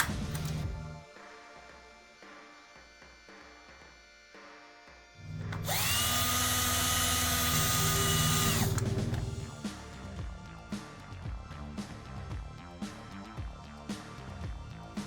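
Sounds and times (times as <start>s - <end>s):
electric power tool whining: 5.2s - 9.7s.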